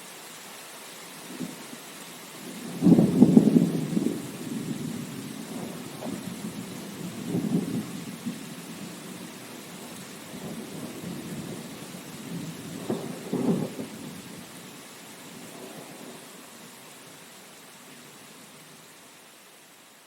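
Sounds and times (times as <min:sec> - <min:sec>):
rain hiss: 0:00.0 - 0:20.0
thunder rumbling: 0:02.4 - 0:14.7.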